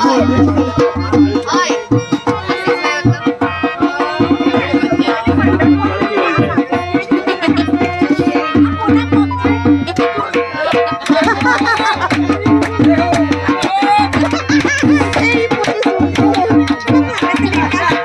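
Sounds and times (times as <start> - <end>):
fast drumming: 0.0 - 18.0.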